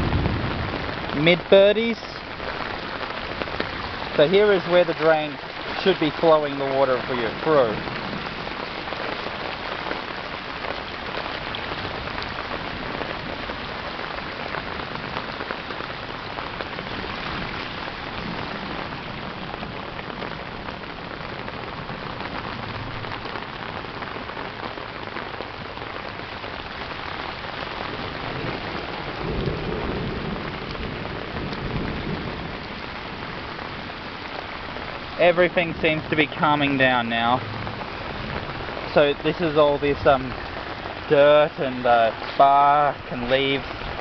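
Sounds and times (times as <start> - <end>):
floodwater churning at drain: 0.0 - 44.0
heavy rain falling: 0.0 - 44.0
thunder rumble: 0.0 - 44.0.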